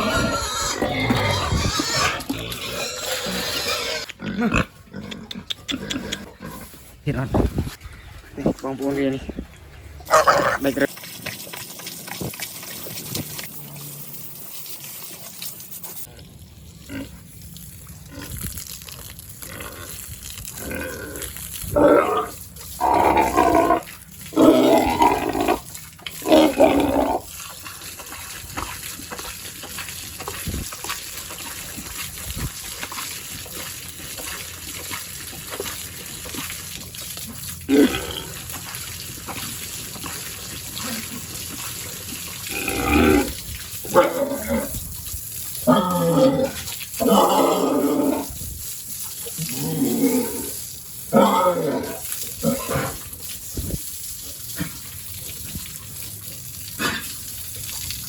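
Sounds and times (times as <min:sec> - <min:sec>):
pigs calling loudly: 0:00.0 - 0:06.7, 0:10.0 - 0:11.5, 0:19.4 - 0:30.6, 0:32.7 - 0:44.9, 0:45.6 - 0:48.4, 0:49.2 - 0:53.1, 0:56.6 - 0:57.2.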